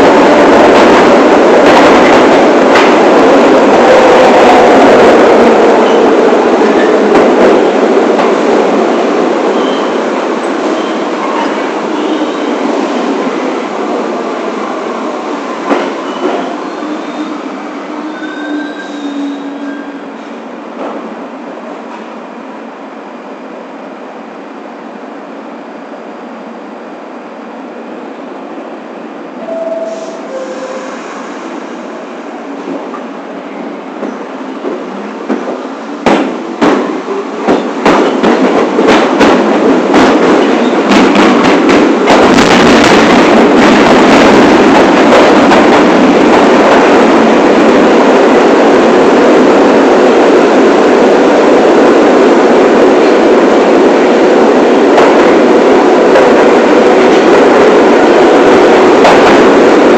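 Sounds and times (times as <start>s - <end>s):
train wheels clacking over rail joints: 34.0s - 47.3s.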